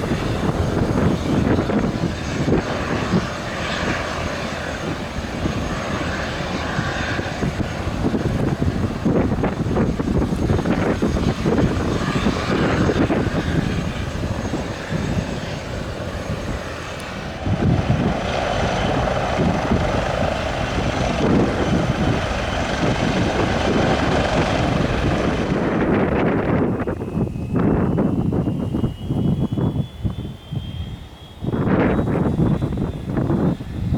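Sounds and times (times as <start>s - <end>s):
helicopter running: 0.0s - 33.9s
thin high whine: 25.8s - 33.9s.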